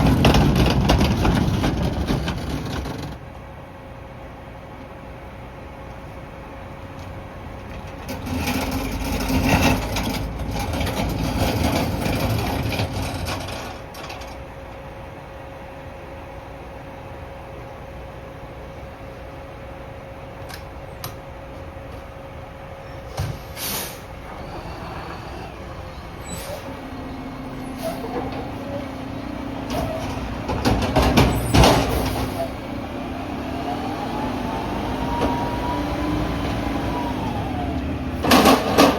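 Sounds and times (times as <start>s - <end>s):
garbage truck running: 0.0s - 38.9s
short hisses: 23.4s - 24.1s.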